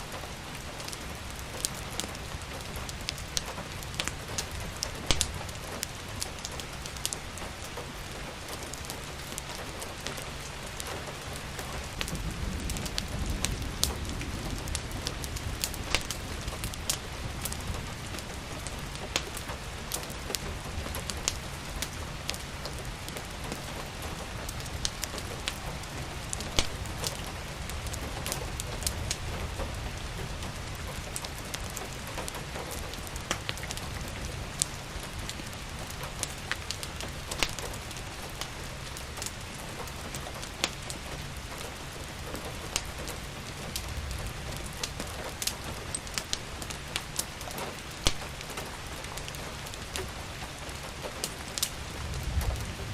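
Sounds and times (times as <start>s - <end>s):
steady rain: 0.0s - 52.9s
wood fire crackling and popping: 0.0s - 52.9s.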